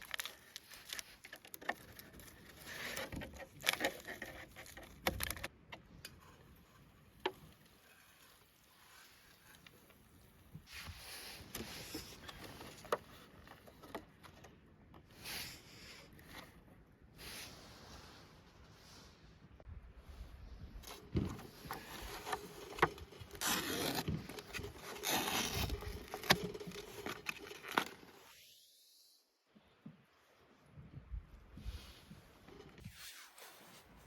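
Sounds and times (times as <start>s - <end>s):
gear rustling and clicking: 0.0s - 5.5s, 20.8s - 28.2s.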